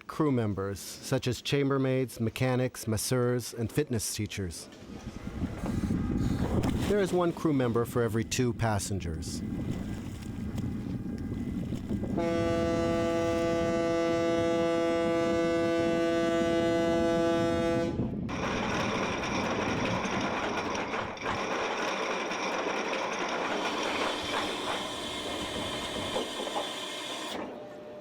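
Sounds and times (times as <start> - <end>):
ship's horn blast: 12.1 - 18.1.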